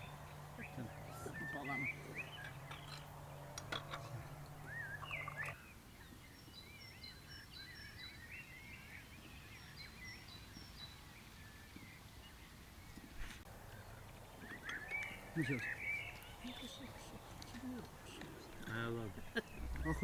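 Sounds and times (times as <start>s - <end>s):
low steady hum: 0.0s - 5.7s, 13.5s - 20.0s
birds chirping and singing: 0.0s - 20.0s.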